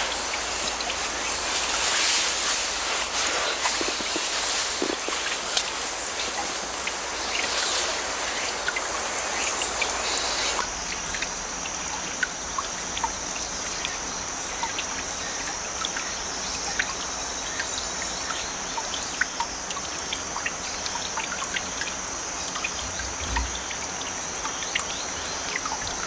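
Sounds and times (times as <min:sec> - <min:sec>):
crickets trilling: 0:00.0 - 0:26.0
stream trickling over rocks: 0:00.0 - 0:26.0.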